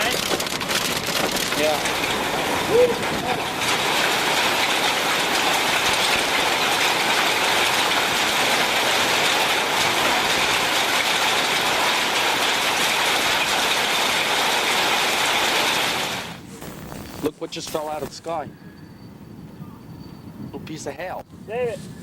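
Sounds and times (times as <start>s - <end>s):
rain and hail on vehicle roof: 0.0s - 18.2s.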